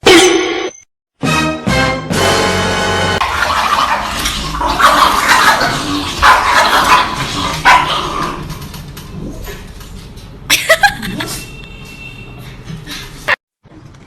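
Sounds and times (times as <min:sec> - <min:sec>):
dog barking: 0:07.6 - 0:08.1.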